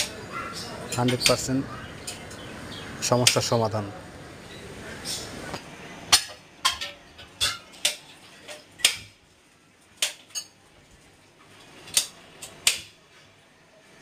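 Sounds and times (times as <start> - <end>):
gas stove metal parts clicking: 11.8 - 12.9.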